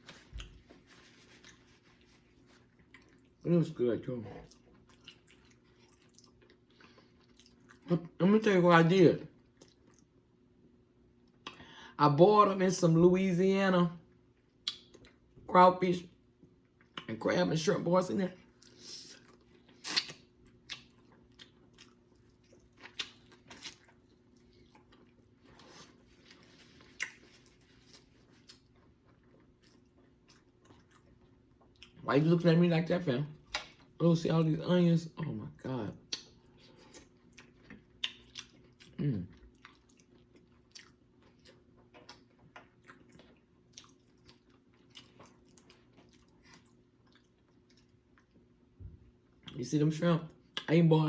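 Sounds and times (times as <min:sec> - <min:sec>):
chewing with wet smacks: 0:00.1 - 0:03.5, 0:04.3 - 0:08.2, 0:09.4 - 0:10.2, 0:18.5 - 0:32.0, 0:36.0 - 0:49.6.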